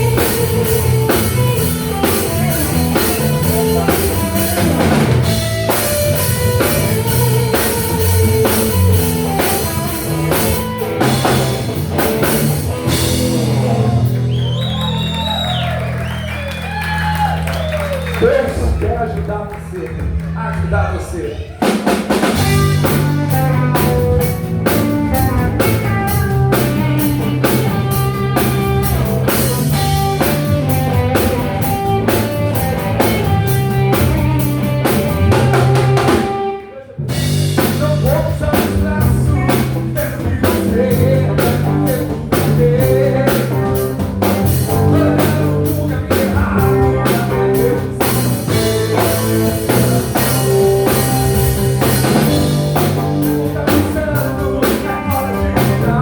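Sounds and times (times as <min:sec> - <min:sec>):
rock band playing live: 0:00.0 - 0:56.0.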